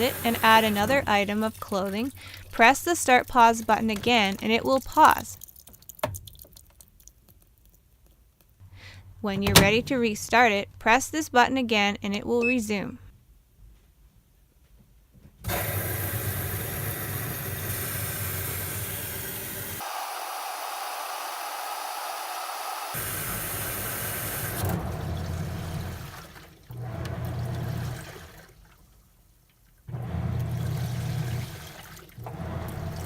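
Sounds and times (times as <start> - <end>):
washing machine water sloshing: 0.0 - 6.8, 23.1 - 33.0.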